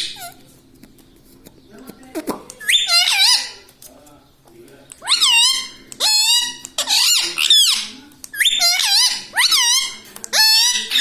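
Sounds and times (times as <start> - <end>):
parrot squeaky calls: 0.0 - 0.5, 2.6 - 3.7, 5.0 - 11.0.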